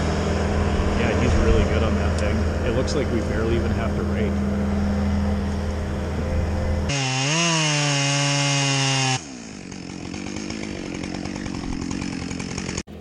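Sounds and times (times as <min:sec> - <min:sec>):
low engine drone: 0:00.0 - 0:08.0
chainsaw revving: 0:06.8 - 0:13.0
chainsaw cutting wood: 0:06.9 - 0:13.0.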